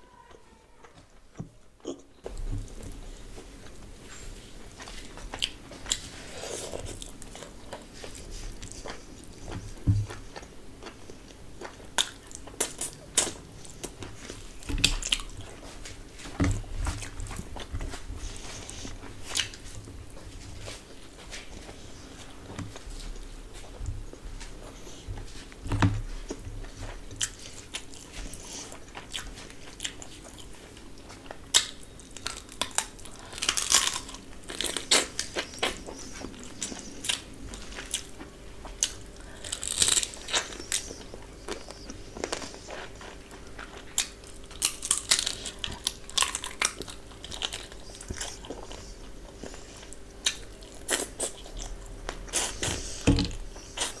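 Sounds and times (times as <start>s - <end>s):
person chewing food: 0.3s - 54.0s.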